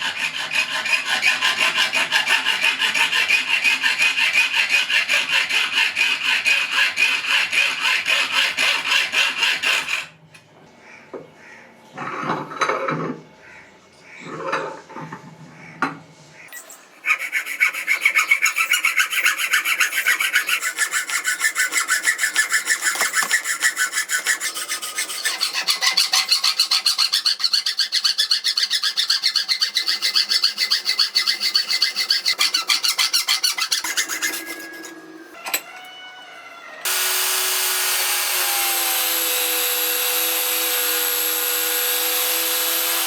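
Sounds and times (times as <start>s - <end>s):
abrasive tool rasping on steel: 0.0s - 10.1s, 16.6s - 35.0s, 36.9s - 43.0s.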